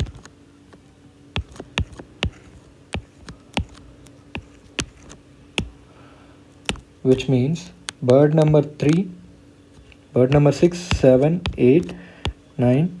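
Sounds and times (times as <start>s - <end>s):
keyboard keystrokes: 0.0s - 0.3s, 1.4s - 3.8s, 6.6s - 9.0s
faint steady hum: 0.0s - 13.0s.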